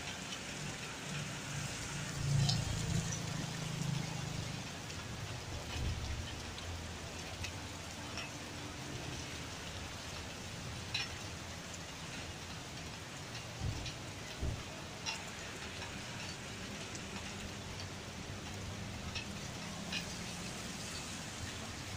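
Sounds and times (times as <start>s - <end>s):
light rain falling: 0.0s - 21.9s
raindrops ticking on a surface: 0.0s - 21.9s.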